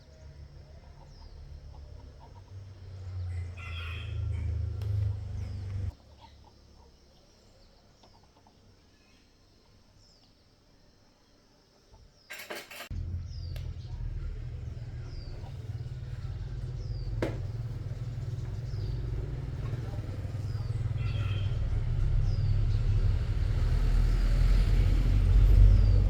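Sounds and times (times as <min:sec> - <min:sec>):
low steady engine hum: 0:00.0 - 0:06.0, 0:12.9 - 0:26.0
small birds chirping: 0:00.0 - 0:26.0.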